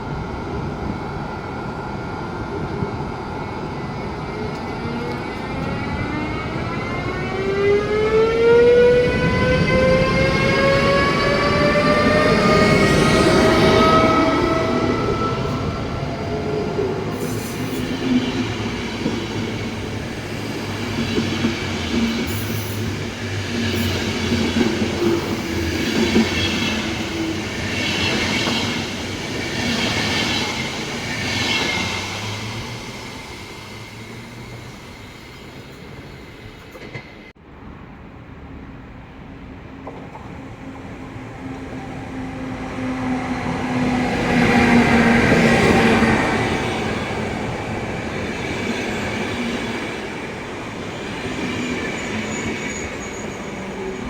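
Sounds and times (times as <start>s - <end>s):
approaching train low hum: 0.0s - 54.0s
train wheel squeal: 4.6s - 37.3s, 48.0s - 54.0s.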